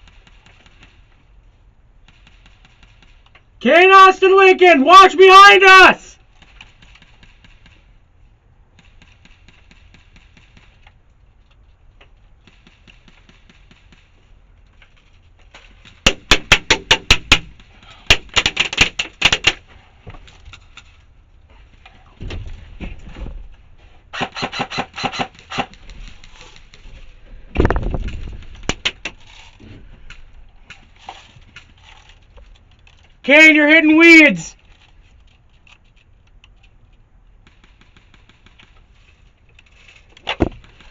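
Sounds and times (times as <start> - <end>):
airsoft rifle rapid shots: 2.0 - 3.2, 6.4 - 8.0, 16.0 - 19.6, 24.1 - 26.2, 37.4 - 38.8.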